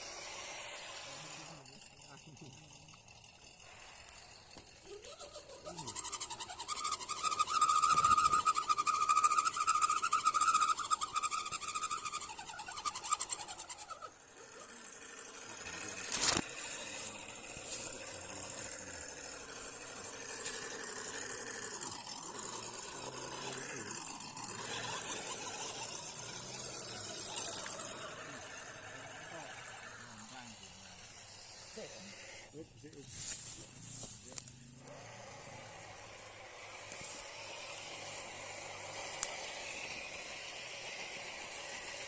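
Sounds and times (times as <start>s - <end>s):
rc car motor whining: 0.0s - 42.0s
uneven mechanical noise: 0.0s - 42.0s.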